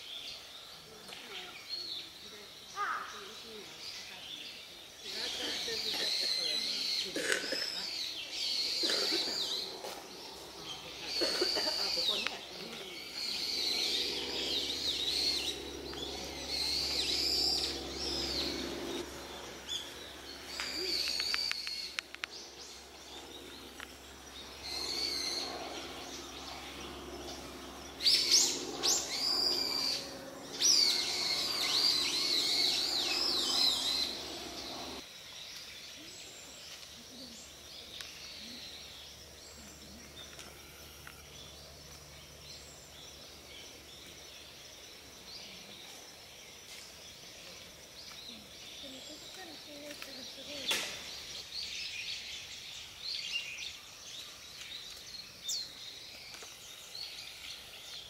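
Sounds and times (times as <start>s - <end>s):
wild birds chirping: 0.0s - 58.0s
low background drone: 4.7s - 35.4s.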